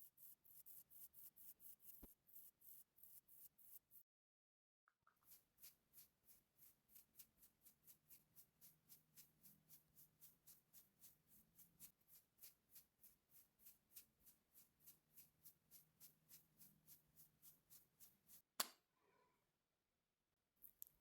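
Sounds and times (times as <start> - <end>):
makeup brush strokes: 5.2 - 18.5.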